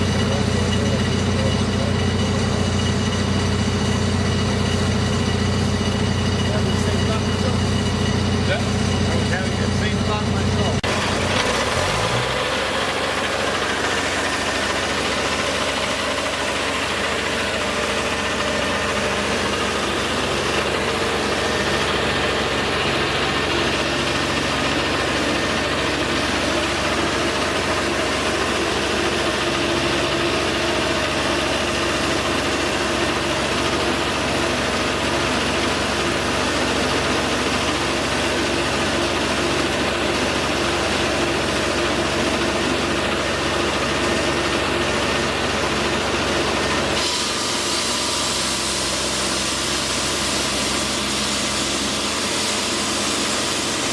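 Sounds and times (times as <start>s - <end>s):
engine humming steadily: 0.0s - 53.9s.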